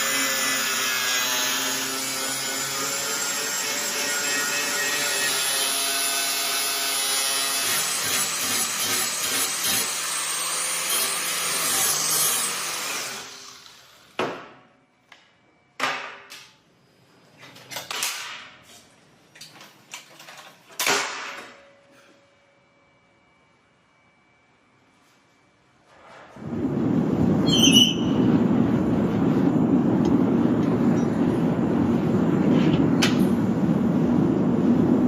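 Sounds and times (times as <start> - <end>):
power tool running on steel: 0.0 - 14.2.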